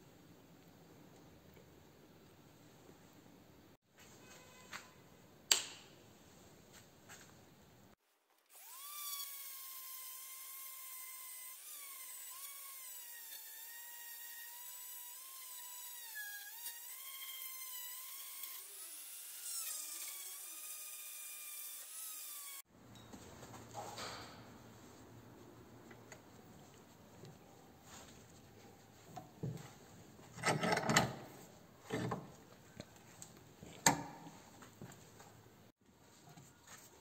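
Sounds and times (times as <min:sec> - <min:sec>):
power tool whining: 0:08.5 - 0:22.6.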